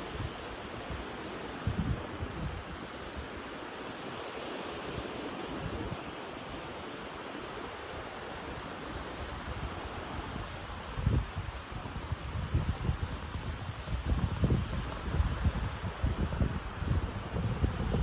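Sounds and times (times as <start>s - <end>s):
ocean surf washing on shore: 0.0s - 18.0s
wind buffeting microphone: 1.6s - 2.8s, 9.2s - 18.0s.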